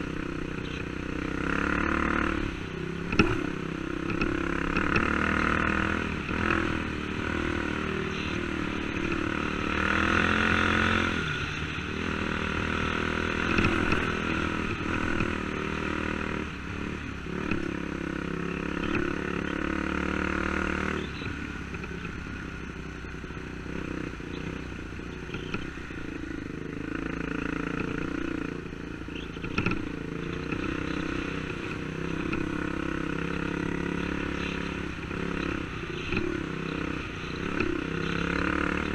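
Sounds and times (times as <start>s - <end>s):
dirt bike engine revving: 0.0s - 22.1s, 23.6s - 38.9s.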